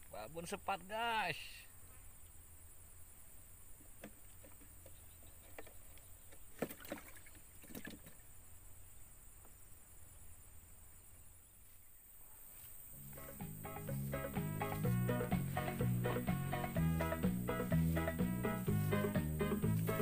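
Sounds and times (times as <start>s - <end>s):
music: 12.9s - 20.0s.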